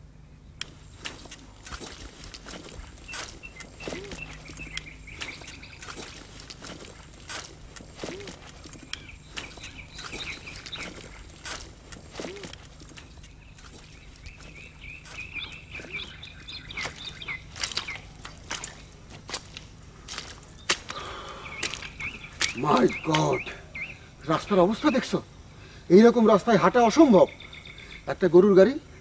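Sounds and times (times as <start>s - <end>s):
low steady rumble: 0.0s - 22.4s
small birds chirping: 0.4s - 29.0s.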